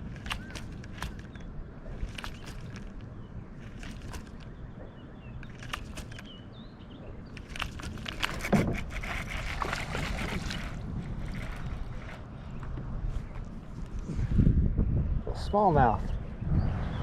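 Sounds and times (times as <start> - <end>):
knocks and handling clicks: 0.0 - 4.5, 5.4 - 6.4, 7.3 - 12.2
water sloshing and splashing: 0.0 - 13.9.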